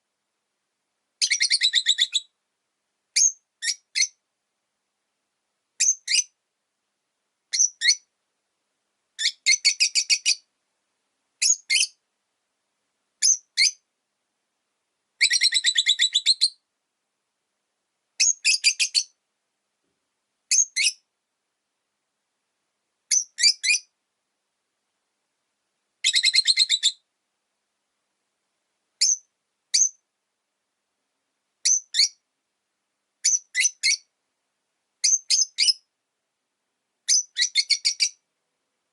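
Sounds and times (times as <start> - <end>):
lovebird chirping: 1.2 - 2.3, 3.2 - 4.2, 5.8 - 6.4, 7.5 - 8.1, 9.2 - 10.5, 11.4 - 12.0, 13.2 - 13.8, 15.2 - 16.6, 18.2 - 19.2, 20.5 - 21.1, 23.1 - 23.9, 26.0 - 27.0, 29.0 - 30.0, 31.6 - 32.2, 33.2 - 34.1, 35.0 - 35.9, 37.1 - 38.2.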